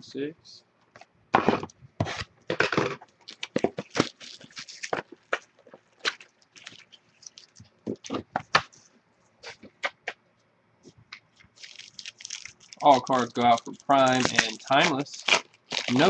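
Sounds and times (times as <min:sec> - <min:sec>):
wrapper crinkling and tearing: 0:02.5 - 0:08.2, 0:11.5 - 0:16.0.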